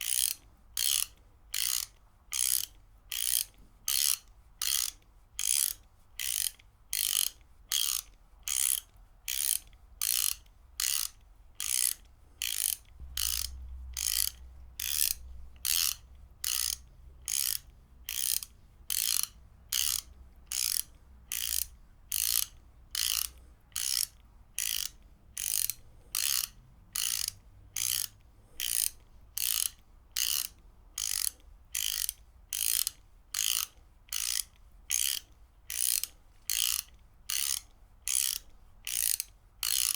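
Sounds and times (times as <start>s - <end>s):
ratchet wrench clicking: 0.0s - 39.9s.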